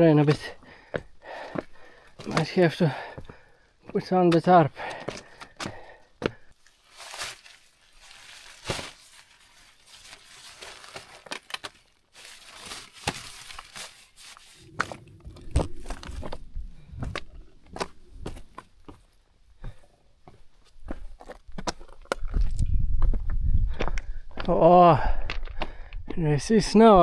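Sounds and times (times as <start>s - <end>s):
tarp rustling and crinkling: 6.6s - 18.6s.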